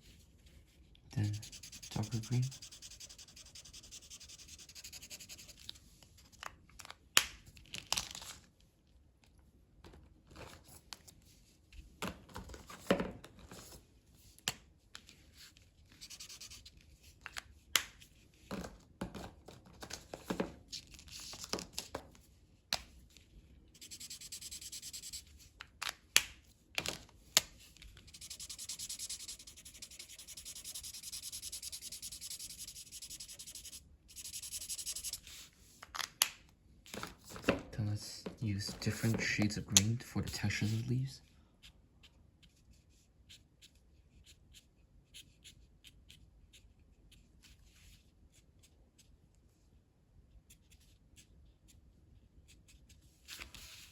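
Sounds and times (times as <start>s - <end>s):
drawing tools set on table: 0.1s - 6.4s, 12.7s - 18.4s, 22.8s - 40.9s, 41.5s - 53.9s
colouring strokes on paper: 1.2s - 5.7s, 16.0s - 16.7s, 23.8s - 25.3s, 28.1s - 35.5s.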